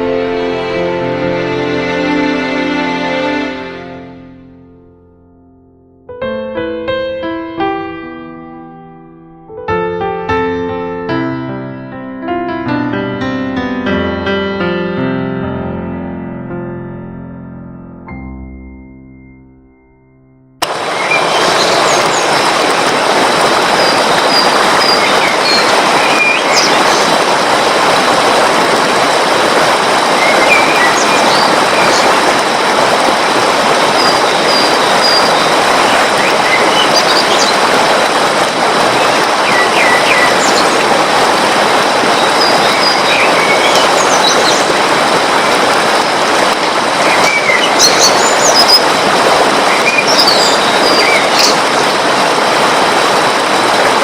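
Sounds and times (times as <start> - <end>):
rushing flowing water: 0.0 - 4.4, 20.6 - 54.0
small birds chirping: 47.1 - 48.8, 49.7 - 51.6.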